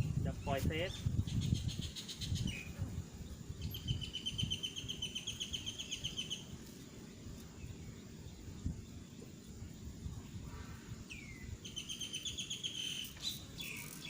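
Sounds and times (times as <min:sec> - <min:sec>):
bird chirping: 0:00.0 - 0:06.6, 0:11.0 - 0:14.0
steady low rumble: 0:00.0 - 0:11.7.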